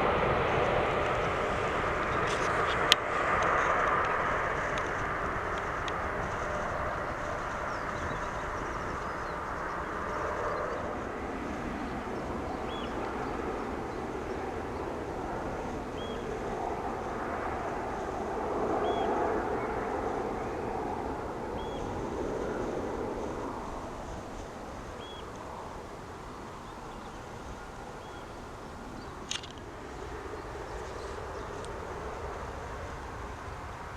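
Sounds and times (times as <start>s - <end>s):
distant jet engines: 0.0s - 33.9s.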